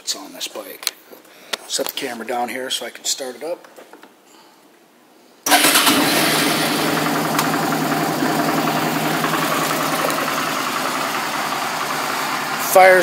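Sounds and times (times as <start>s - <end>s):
motorcycle engine starting and idling: 5.5s - 13.0s.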